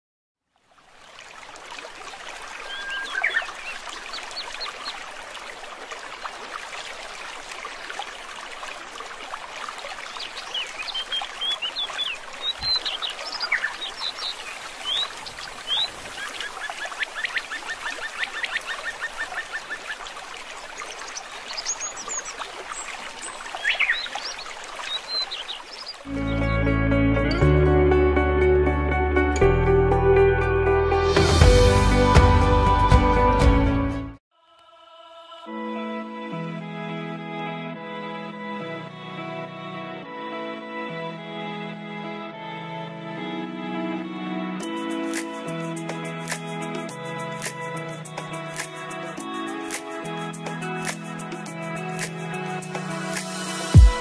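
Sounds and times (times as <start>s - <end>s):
small birds chirping: 2.6s - 5.0s, 10.1s - 26.1s
bird trilling: 2.7s - 3.5s.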